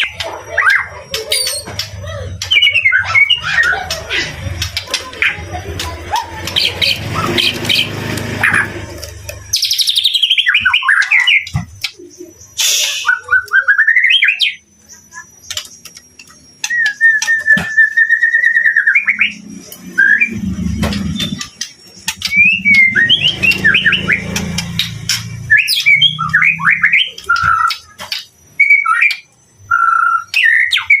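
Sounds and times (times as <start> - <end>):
bird singing whistled phrases: 9.5 - 15.6, 16.6 - 20.4, 22.2 - 24.4, 25.4 - 28.0, 28.6 - 31.0.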